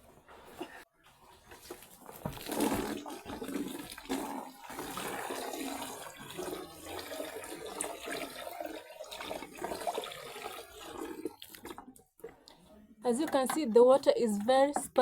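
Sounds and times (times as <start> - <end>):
water pouring from a bucket: 1.5 - 11.9.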